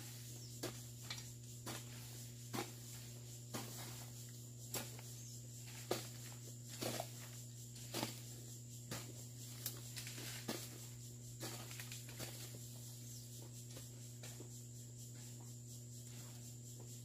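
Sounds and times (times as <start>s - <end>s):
hoe chopping into soil: 5.8s - 7.3s.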